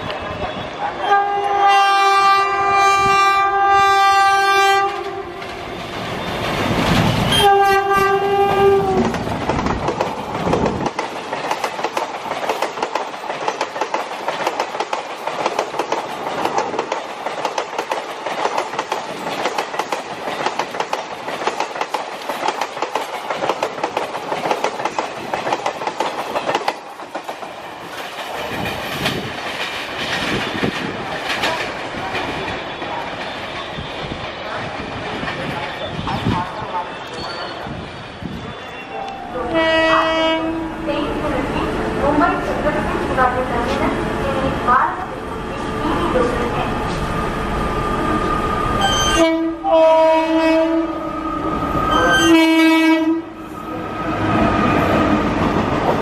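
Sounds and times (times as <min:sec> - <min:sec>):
locomotive horn blasts: 0:01.0 - 0:05.3, 0:07.3 - 0:09.0, 0:39.5 - 0:40.6, 0:48.8 - 0:50.9, 0:52.0 - 0:53.2
train wheels clattering over joints: 0:08.9 - 0:35.6.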